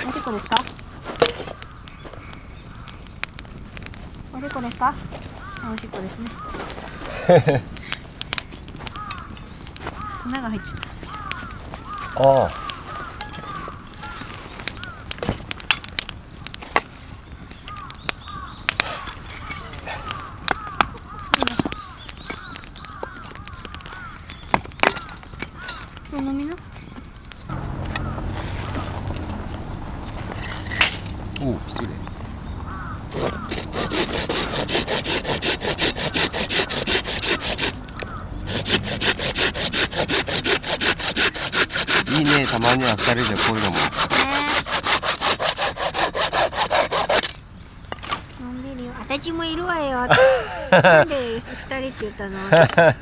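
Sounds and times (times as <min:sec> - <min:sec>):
birds calling: 0:00.0 - 0:53.0
campfire crackling and popping: 0:00.0 - 0:53.0
hand saw cutting wood: 0:27.5 - 0:31.9, 0:32.7 - 0:47.4.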